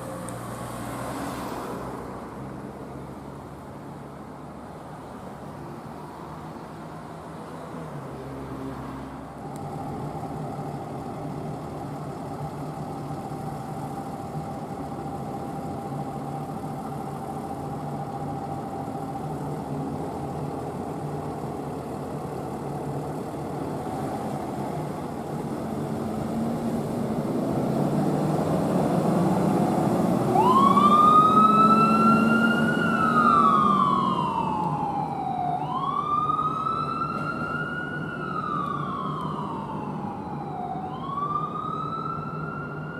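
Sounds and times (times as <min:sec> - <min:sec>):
vehicle engine running: 0:09.4 - 0:30.6
siren wailing: 0:30.2 - 0:42.9.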